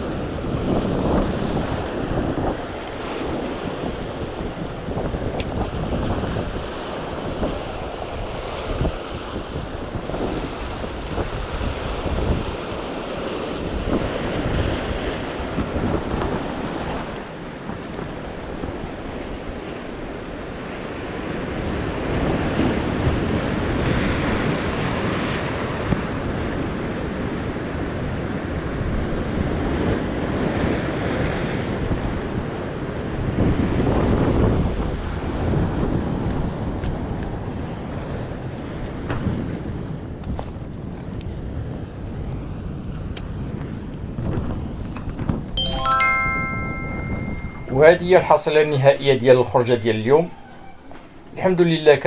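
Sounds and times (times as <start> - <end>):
sea surf washing in: 23.6 - 26.3.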